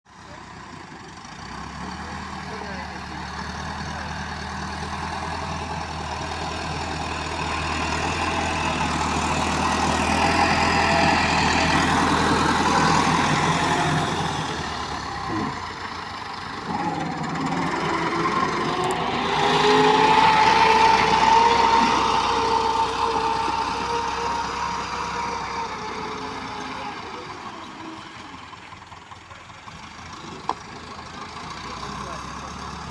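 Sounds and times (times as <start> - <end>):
tractor diesel engine revving: 0.1 - 32.9.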